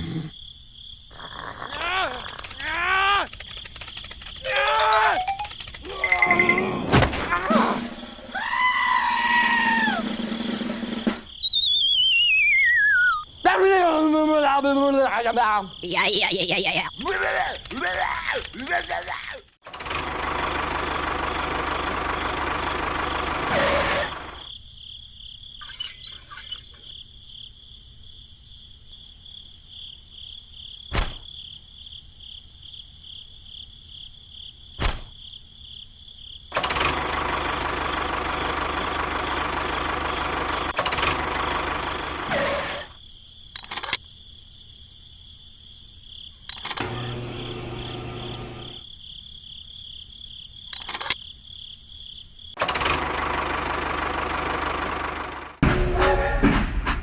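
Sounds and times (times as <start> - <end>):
sharp clicks: 1.7 - 5.9, 17.0 - 19.6, 43.6 - 44.0, 46.5 - 47.0, 50.7 - 51.2
small motor running: 2.2 - 4.5, 46.5 - 48.8.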